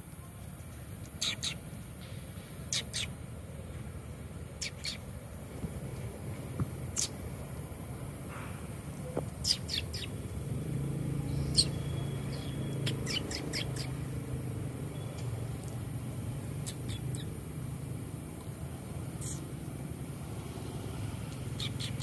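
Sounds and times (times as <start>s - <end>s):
bird chirping: 1.0s - 1.6s, 2.6s - 3.2s, 4.5s - 5.2s, 6.9s - 7.3s, 8.3s - 19.7s, 20.7s - 22.0s.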